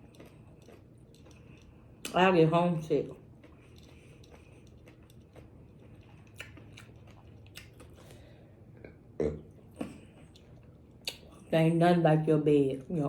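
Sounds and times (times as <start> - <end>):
person chewing food: 0.0 - 11.5.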